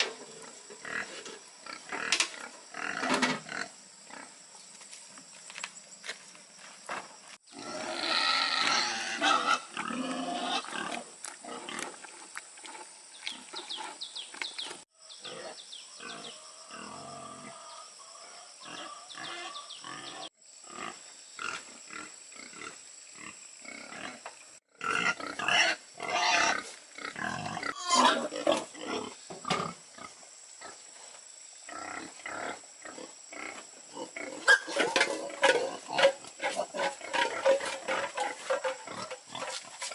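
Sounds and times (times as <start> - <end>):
pigs squealing and grunting: 7.5 - 12.0, 15.2 - 21.0, 24.8 - 29.8, 31.7 - 39.9.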